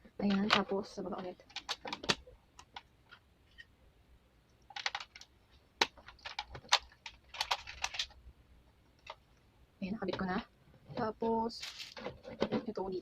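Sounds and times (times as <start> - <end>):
plastic parts clicking: 0.2 - 3.2, 4.6 - 8.2.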